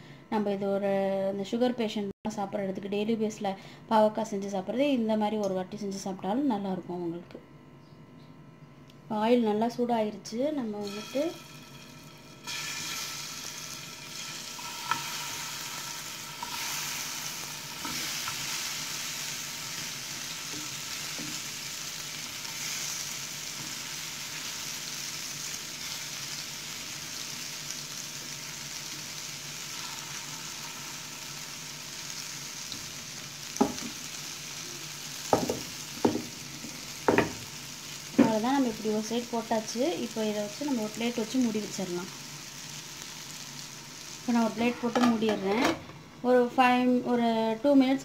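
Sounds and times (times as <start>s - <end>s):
vegetables sizzling in oil: 10.3s - 48.0s.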